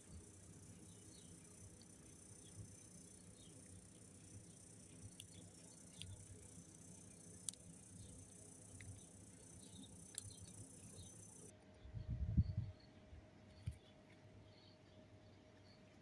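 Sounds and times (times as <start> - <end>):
crickets chirping: 0.0 - 11.5.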